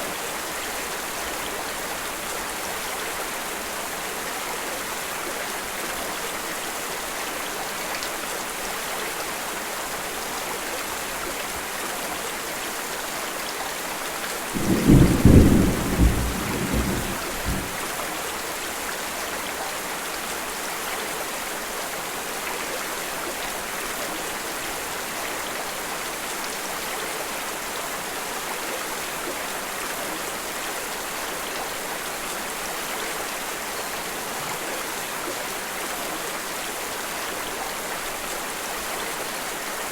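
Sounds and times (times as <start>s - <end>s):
steady rain: 0.0s - 39.9s
low thunder clap: 14.6s - 17.9s.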